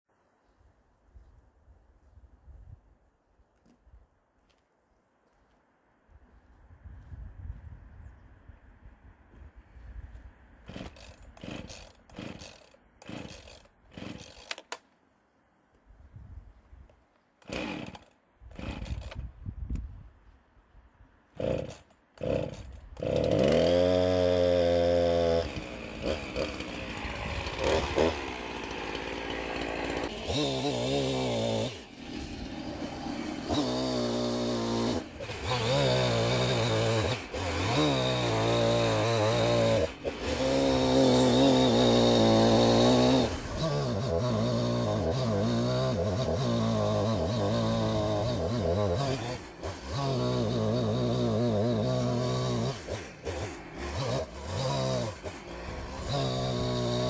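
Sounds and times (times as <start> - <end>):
chainsaw revving: 10.6 - 14.8, 17.4 - 19.2, 21.4 - 57.0.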